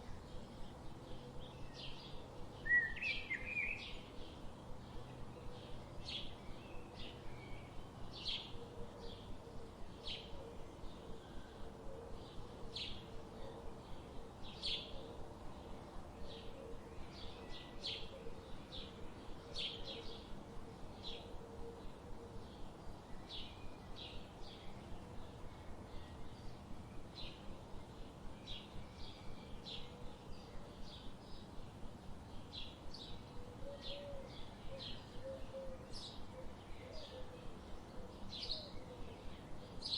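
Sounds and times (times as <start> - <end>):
background hiss: 0.0 - 39.9.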